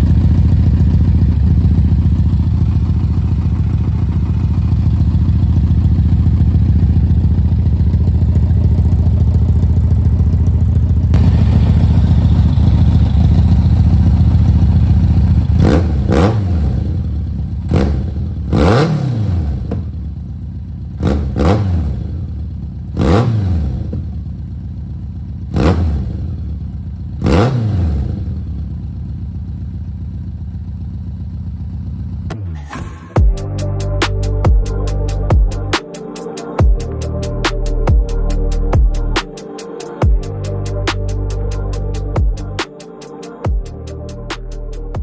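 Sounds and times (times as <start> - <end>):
motorcycle engine revving: 0.0 - 32.6.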